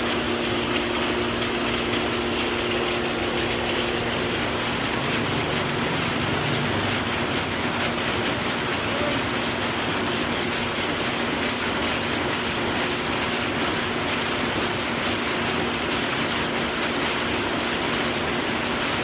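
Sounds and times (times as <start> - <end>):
machinery hum: 0.0 - 12.3
machinery clatter: 0.0 - 19.0.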